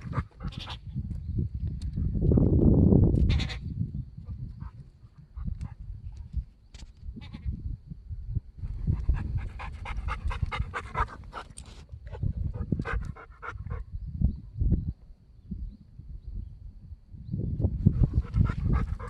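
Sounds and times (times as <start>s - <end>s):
steady low rumble: 17.7s - 19.0s.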